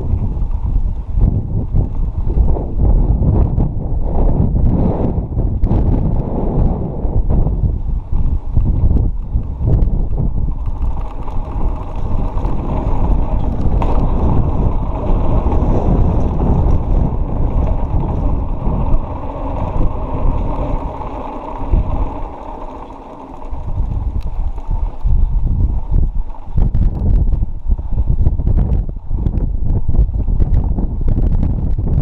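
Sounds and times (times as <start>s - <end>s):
bike rattling: 0.0s - 32.0s
bike tyres on dirt: 0.0s - 32.0s
wind rumbling on microphone: 0.0s - 32.0s.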